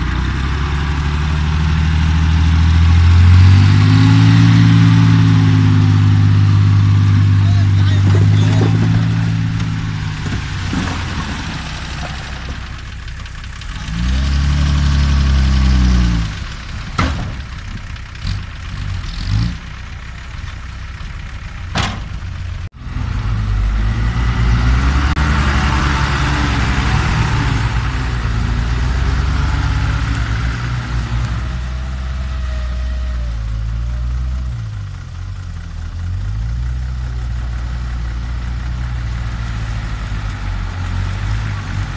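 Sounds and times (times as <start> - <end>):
diesel engine idling and revving: 0.0 - 41.9
sharp knocks: 21.7 - 22.2.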